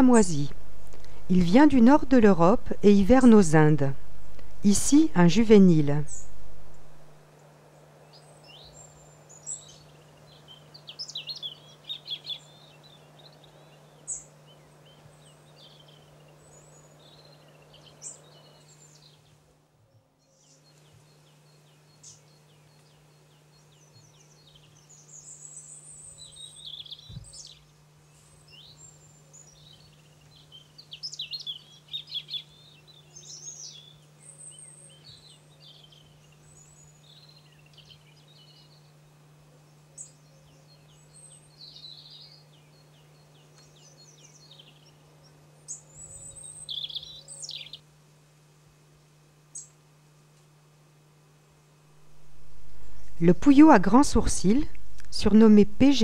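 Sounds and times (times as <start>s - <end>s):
faint low hum: 0.0s - 47.8s, 50.7s - 56.0s
small birds chirping: 8.0s - 19.4s, 20.2s - 39.0s, 39.6s - 47.8s.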